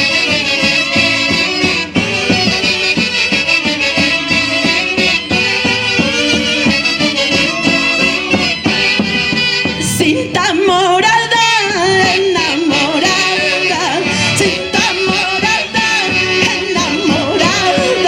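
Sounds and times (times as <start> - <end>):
folk orchestra playing: 0.0 - 18.0
high singing voice with vibrato: 9.9 - 18.0.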